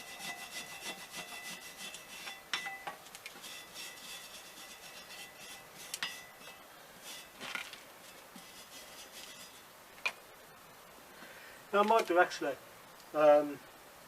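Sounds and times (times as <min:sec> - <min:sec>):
wire brush scrubbing metal: 0:00.0 - 0:09.7
metal clinks and knocks: 0:02.2 - 0:03.0.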